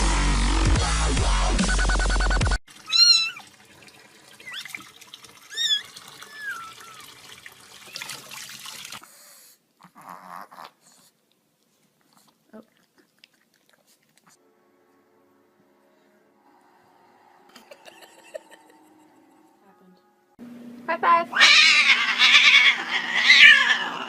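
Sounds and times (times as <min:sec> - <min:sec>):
pet animal wavering cries: 0:02.9 - 0:03.5, 0:05.5 - 0:07.1, 0:21.3 - 0:24.0.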